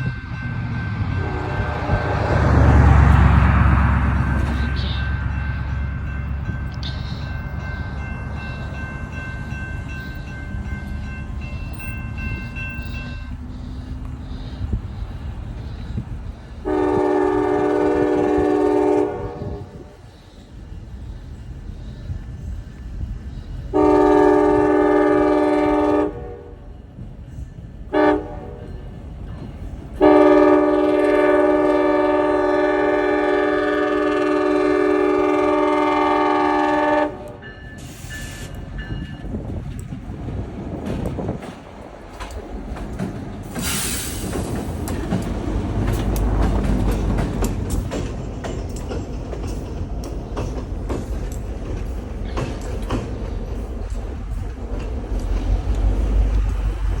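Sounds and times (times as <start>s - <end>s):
train rumbling past: 0.0s - 57.0s
locomotive air horn: 1.2s - 3.7s, 16.6s - 20.0s, 23.7s - 26.6s, 27.9s - 28.7s, 30.0s - 38.6s.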